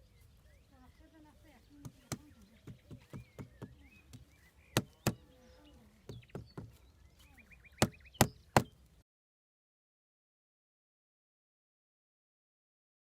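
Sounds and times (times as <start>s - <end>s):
hard objects knocking: 1.8s - 5.2s, 6.1s - 6.8s.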